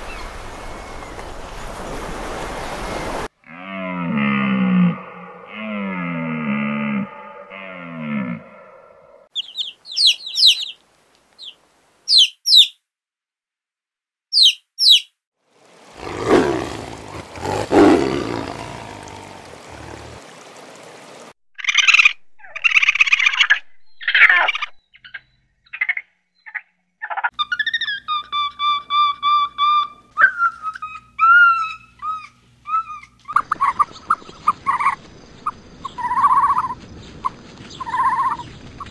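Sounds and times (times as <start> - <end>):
baby chicks peeping: 9.4 - 10.8
tiger roaring: 15.9 - 20.2
raccoons chittering: 16.0 - 20.2.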